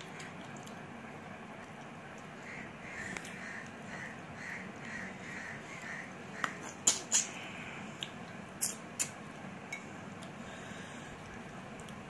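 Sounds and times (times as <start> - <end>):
open-mouth chewing smacks: 6.4 - 9.4.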